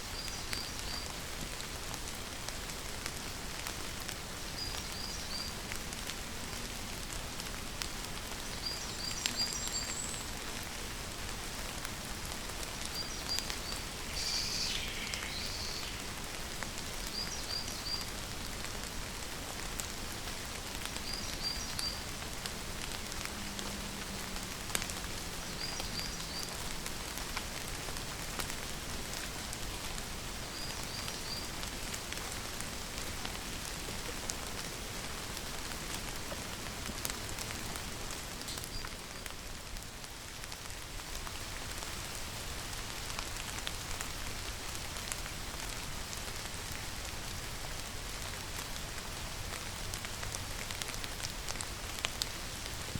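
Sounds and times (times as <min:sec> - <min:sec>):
steady rain: 0:00.0 - 0:52.9
bird chirping: 0:13.0 - 0:16.1.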